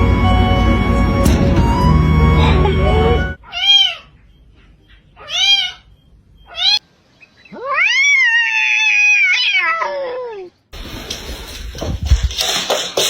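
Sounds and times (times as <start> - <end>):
cat meowing: 3.4 - 4.1, 5.2 - 5.9, 6.5 - 6.8, 7.5 - 10.5
noisy rustling: 10.8 - 13.0.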